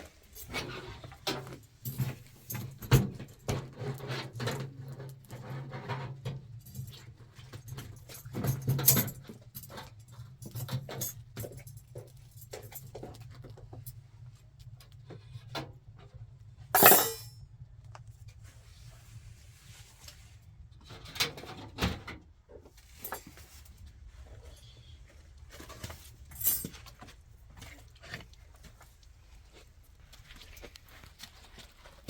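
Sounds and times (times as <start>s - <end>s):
household objects clattering: 16.8s - 17.3s.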